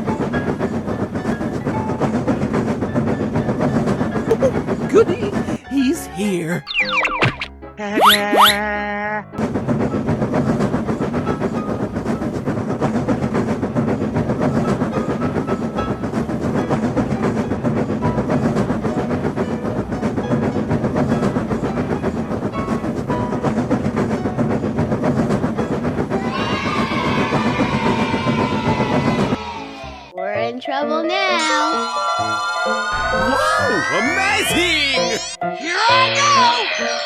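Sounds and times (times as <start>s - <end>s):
train wheels clattering: 0.0s - 5.6s, 9.4s - 30.0s
low train rumble: 0.0s - 6.7s, 9.4s - 37.0s
high multi-tone sound: 31.5s - 37.0s.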